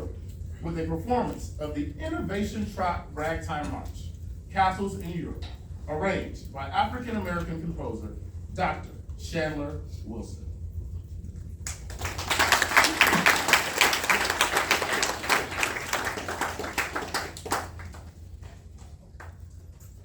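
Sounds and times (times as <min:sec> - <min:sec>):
audience applause: 0:11.7 - 0:18.5.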